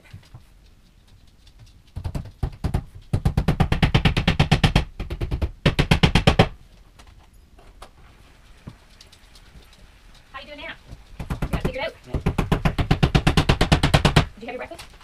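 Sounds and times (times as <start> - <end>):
rapid sharp knocks: 1.9 - 6.6, 11.2 - 14.3.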